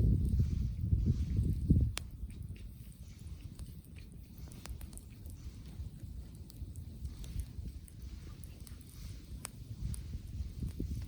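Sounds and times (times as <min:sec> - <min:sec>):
wind buffeting microphone: 0:00.0 - 0:11.0
faint sharp clicks: 0:01.9 - 0:02.7.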